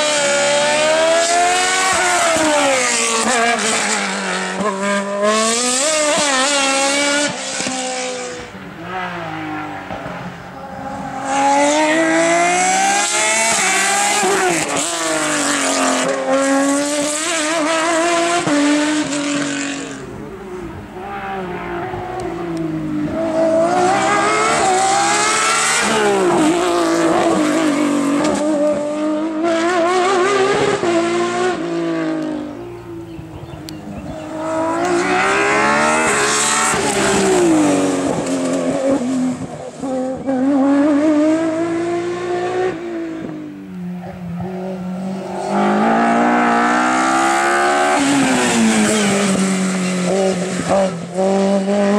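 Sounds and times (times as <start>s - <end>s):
racing car engines revving: 0.0s - 51.9s.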